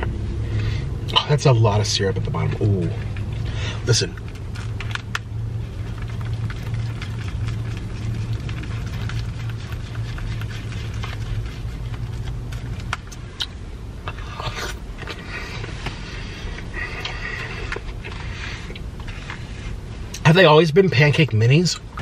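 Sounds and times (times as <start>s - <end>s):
car engine idling: 0.0s - 22.0s
eating clicks and wet smacks: 4.2s - 13.6s.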